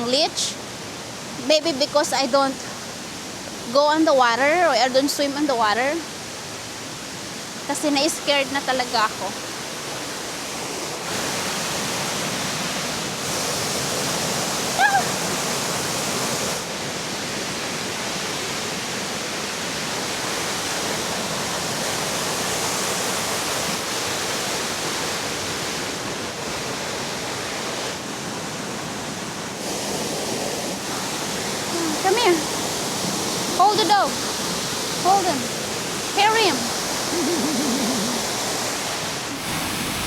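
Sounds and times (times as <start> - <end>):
river and waterfall rushing: 0.0 - 40.0.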